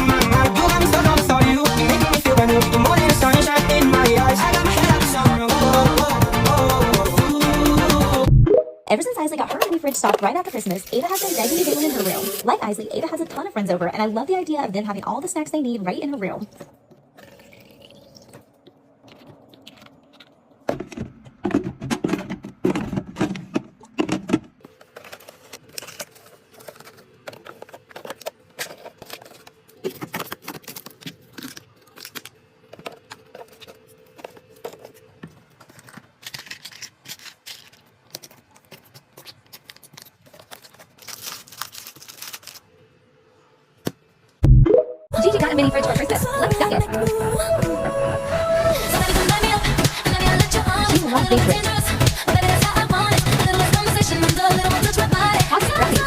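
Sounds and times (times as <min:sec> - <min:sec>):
packaging clicks and knocks: 0:19.6 - 0:42.6
wrappers rustling: 0:23.8 - 0:42.9.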